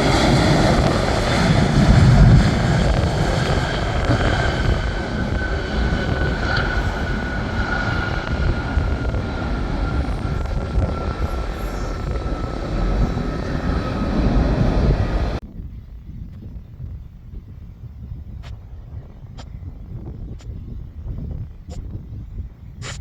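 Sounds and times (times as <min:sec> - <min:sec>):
airliner engine noise: 0:00.0 - 0:23.0.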